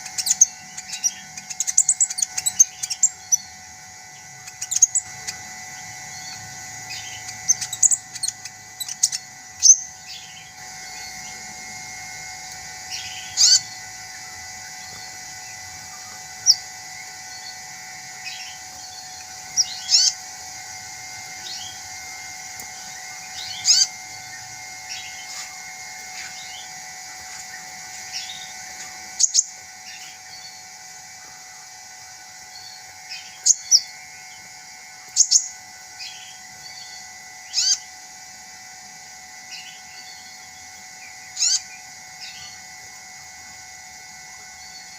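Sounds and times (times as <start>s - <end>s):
bird chirping high and sharp: 0.0s - 11.9s, 12.8s - 20.4s, 22.7s - 30.7s, 32.6s - 34.5s, 35.1s - 37.9s, 41.3s - 42.6s
faint background drone: 0.0s - 44.9s.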